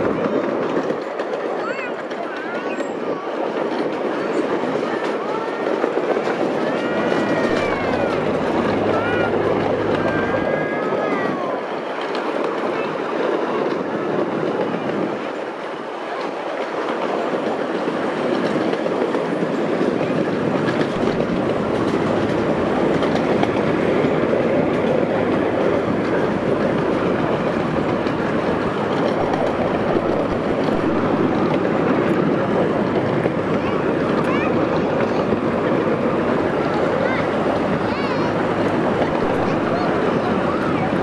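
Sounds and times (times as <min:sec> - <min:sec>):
train wheels rumbling on rail: 0:00.0 - 0:41.0.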